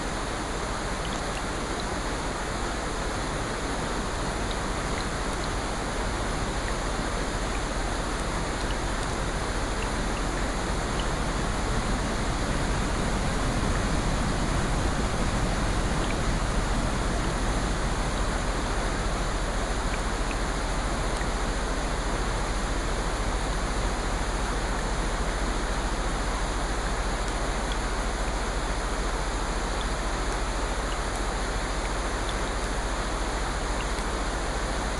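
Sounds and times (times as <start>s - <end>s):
rushing water: 0.0s - 34.9s
faint ticks: 1.0s - 1.9s, 7.4s - 11.2s, 29.6s - 34.4s.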